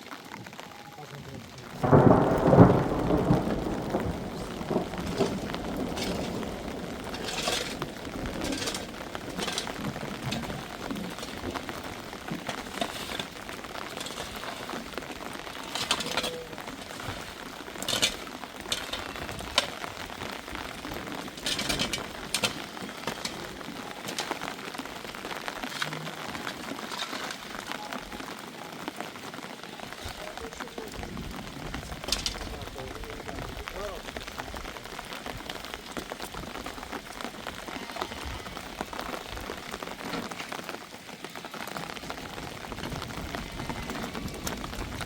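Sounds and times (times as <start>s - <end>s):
rain falling: 0.0s - 45.0s
knocks and rustles: 3.4s - 24.5s.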